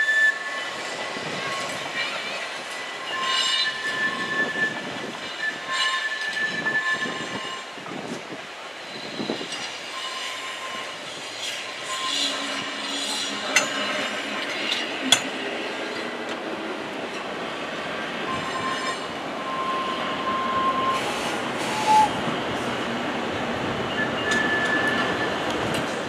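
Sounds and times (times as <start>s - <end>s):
train wheels rattling on rail: 0.4s - 26.0s
high-pitched wheel squeals: 3.0s - 7.7s, 8.9s - 15.3s, 18.3s - 22.2s, 23.9s - 25.4s.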